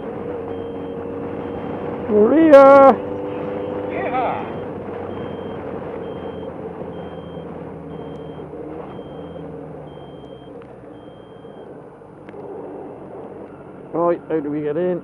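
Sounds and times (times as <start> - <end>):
reversing alarm beeps: 0.0 - 1.8, 4.4 - 11.7
engine running: 0.0 - 15.0.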